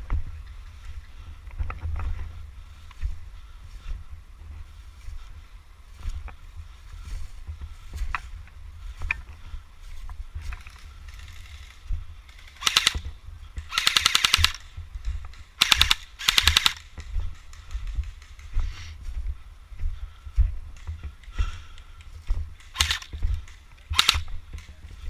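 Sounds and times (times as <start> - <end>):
steady low rumble: 0.0 - 25.0
airsoft rifle firing bursts: 12.4 - 13.0, 13.7 - 14.7, 15.6 - 17.0, 22.6 - 24.7.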